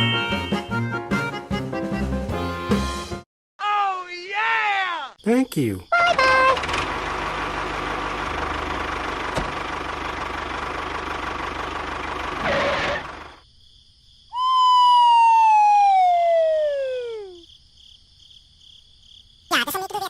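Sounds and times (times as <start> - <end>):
whistle-like tone falling in pitch: 14.3 - 17.4.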